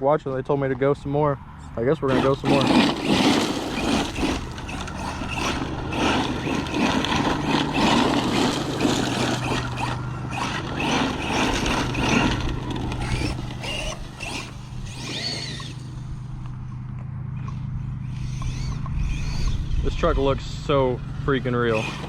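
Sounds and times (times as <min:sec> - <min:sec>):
rc truck motor surging: 0:01.8 - 0:22.0
tyres tearing ground: 0:02.0 - 0:16.6, 0:21.5 - 0:22.0.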